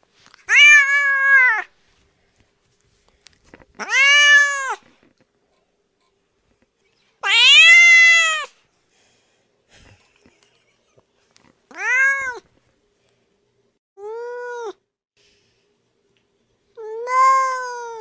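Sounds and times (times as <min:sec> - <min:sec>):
cat meowing: 0:00.5 - 0:01.7, 0:03.8 - 0:04.8, 0:07.2 - 0:08.5, 0:11.7 - 0:12.4, 0:16.8 - 0:18.0.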